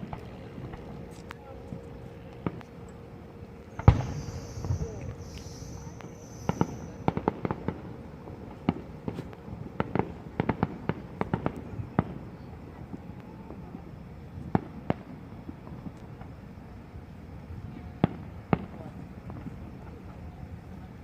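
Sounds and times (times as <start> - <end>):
fireworks bangs and cracks: 3.8 - 12.2, 14.5 - 16.4.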